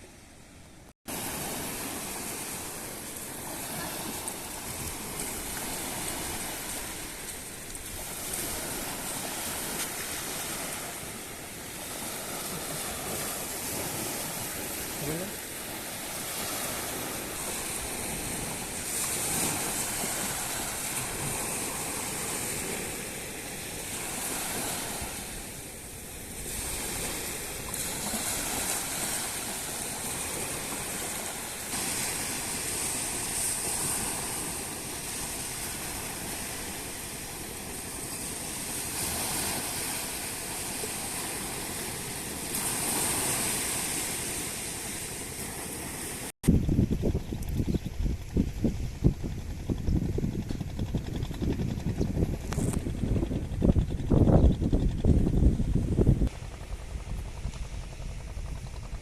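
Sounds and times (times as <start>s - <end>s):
surf washing onto beach: 1.1s - 46.4s.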